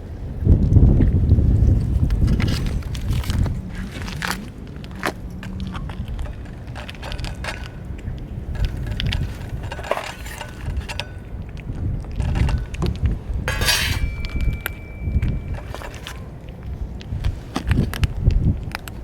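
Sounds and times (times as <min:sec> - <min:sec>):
light clinks and clicks: 0:05.0 - 0:19.0.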